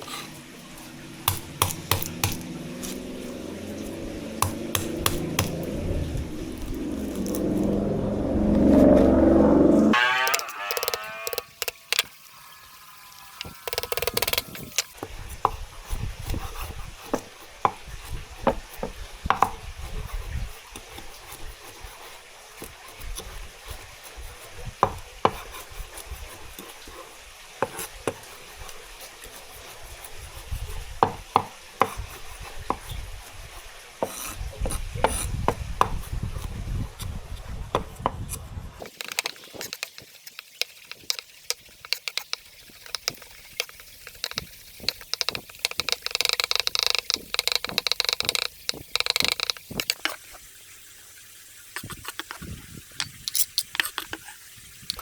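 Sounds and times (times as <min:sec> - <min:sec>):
low rumble: 0:00.9 - 0:10.0.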